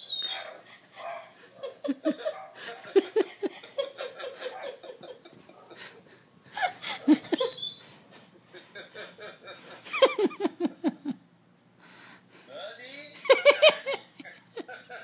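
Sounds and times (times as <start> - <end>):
dog whining and yipping: 0.0 - 0.6, 7.4 - 8.0
people laughing: 1.4 - 7.8, 8.5 - 11.2, 13.2 - 15.0.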